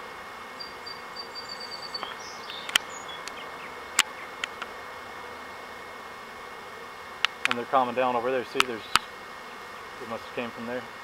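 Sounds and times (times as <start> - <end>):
honeybees buzzing: 0.0 - 11.0
sharp clicks: 2.0 - 4.7, 7.2 - 7.6, 8.6 - 9.1.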